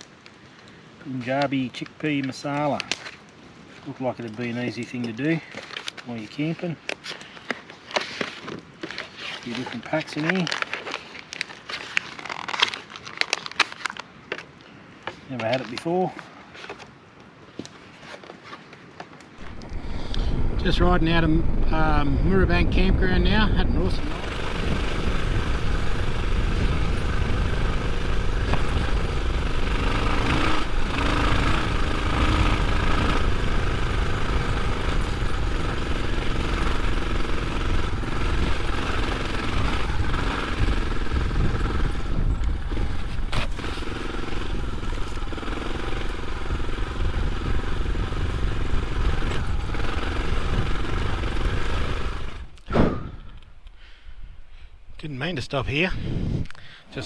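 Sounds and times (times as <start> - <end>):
motorcycle engine running: 19.4 - 52.6
wind rumble on microphone: 19.4 - 54.5, 55.6 - 56.6.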